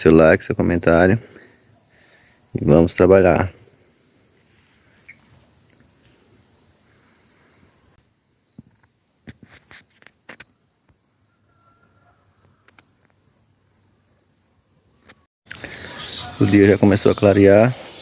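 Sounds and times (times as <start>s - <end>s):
crickets chirping: 0.0s - 18.0s
continuous thin trill: 0.9s - 15.2s.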